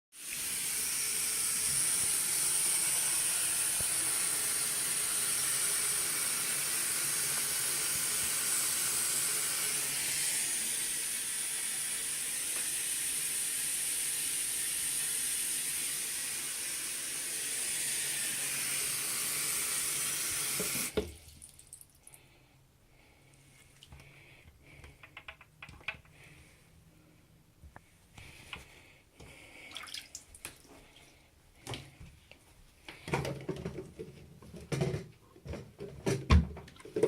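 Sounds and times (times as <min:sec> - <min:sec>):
water running from a faucet: 0:00.2 - 0:21.8.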